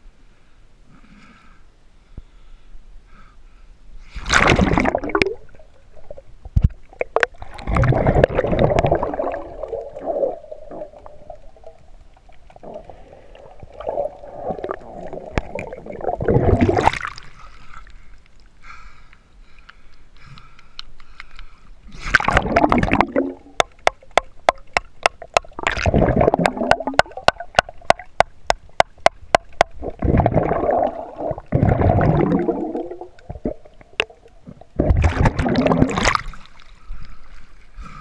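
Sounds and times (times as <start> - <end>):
underwater gurgling bubbles: 4.2 - 17.6, 21.9 - 36.7.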